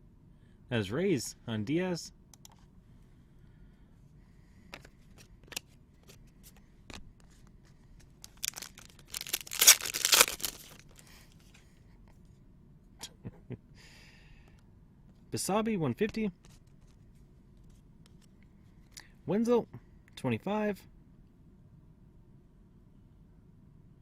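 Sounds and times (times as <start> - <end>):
wrapper tearing open: 8.2 - 11.0.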